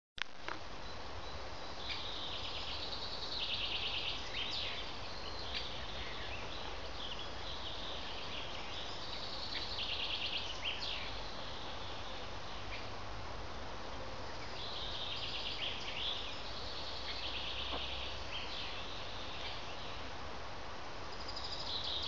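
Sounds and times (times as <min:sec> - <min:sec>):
faint bird chirps: 0:00.8 - 0:12.9, 0:21.1 - 0:22.0
songbird trilling: 0:00.8 - 0:12.9.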